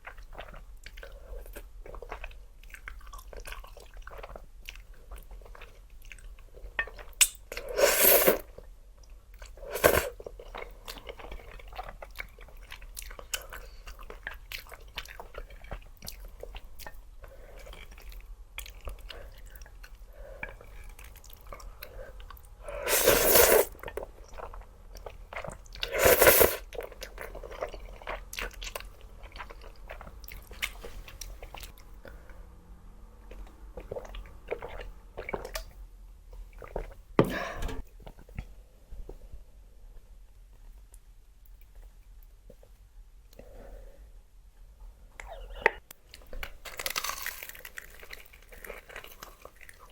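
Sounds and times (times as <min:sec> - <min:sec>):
chewing: 0:00.0 - 0:07.8, 0:45.2 - 0:49.9
crunching bites of fried chicken: 0:46.4 - 0:49.9.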